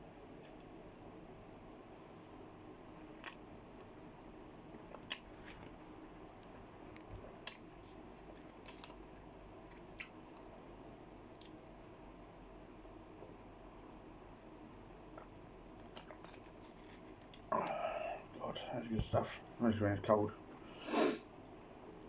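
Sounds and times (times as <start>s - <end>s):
faint room hum: 0.0s - 22.0s
wet chewing and mouth clicks: 8.3s - 10.5s, 11.3s - 11.6s.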